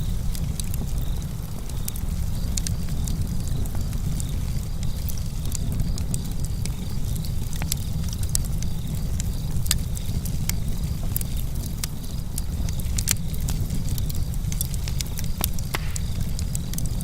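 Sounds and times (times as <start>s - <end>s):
campfire wood crackling: 0.0s - 17.0s
low rumble of fire: 0.0s - 17.0s.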